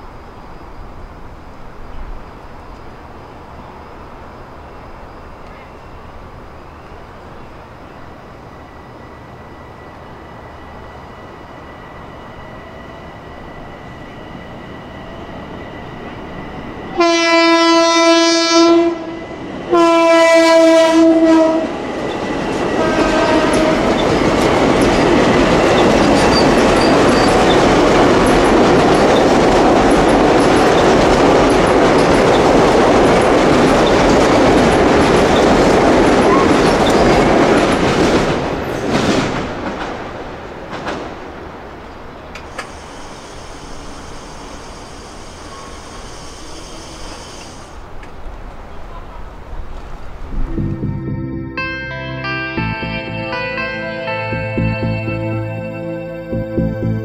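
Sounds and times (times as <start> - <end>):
train rolling rumble and clatter: 0.0 - 50.8
train horn blasts: 16.9 - 21.8, 22.7 - 24.0
crossing bell ringing: 23.6 - 37.8, 50.6 - 57.0.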